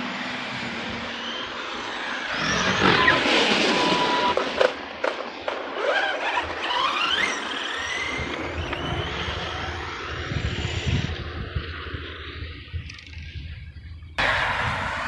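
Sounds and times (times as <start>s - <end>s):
electric motor whining: 0.0s - 4.6s, 5.8s - 12.4s.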